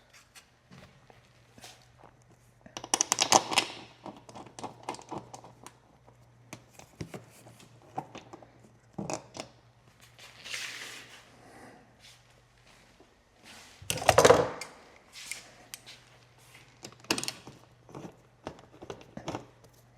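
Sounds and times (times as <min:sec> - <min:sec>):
parts clicking and rattling: 0:16.6 - 0:19.8.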